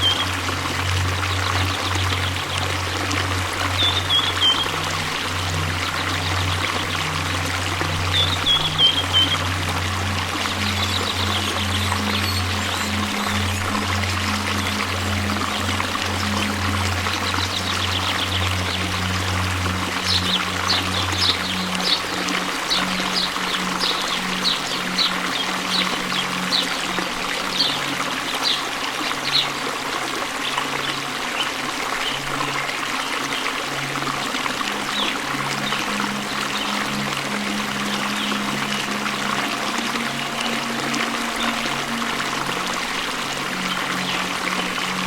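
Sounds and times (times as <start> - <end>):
low music drone: 0.0 - 45.0
waterfall rushing: 0.0 - 45.0.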